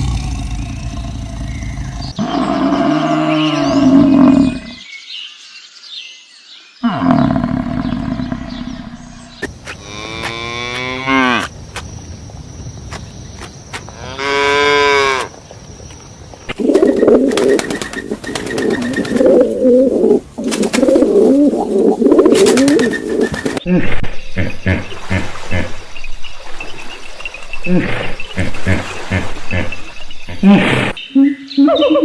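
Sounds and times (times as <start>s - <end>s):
cattle mooing: 14.0s - 15.3s
pigeons cooing: 16.5s - 23.6s.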